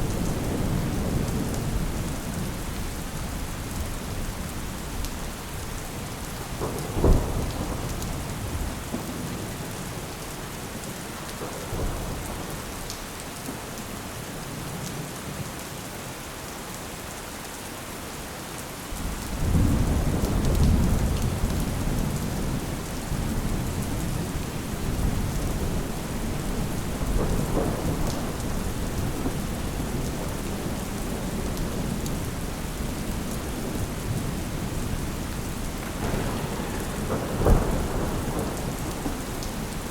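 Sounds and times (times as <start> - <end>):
thunder crack and rumble: 0.0 - 5.2, 6.2 - 10.2, 11.4 - 12.8, 19.0 - 39.9
steady rain: 0.0 - 39.9.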